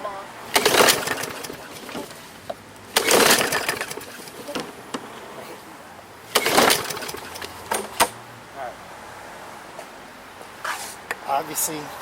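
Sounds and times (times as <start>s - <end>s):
recoil starter pull whirr: 0.5s - 2.2s, 2.9s - 4.5s, 6.3s - 8.2s.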